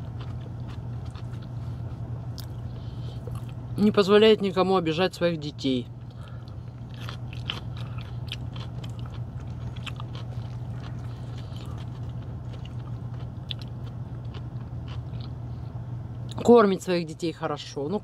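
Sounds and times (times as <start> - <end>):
crunching and chewing cucumber: 0.0 - 3.8, 5.9 - 16.5
low hum: 0.0 - 18.0.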